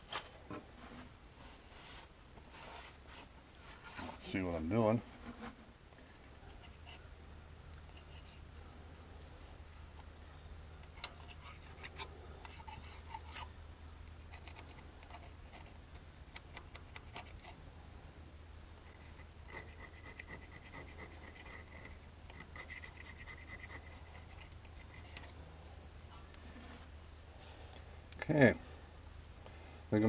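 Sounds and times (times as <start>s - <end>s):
knife scraping gasket: 10.9s - 13.5s.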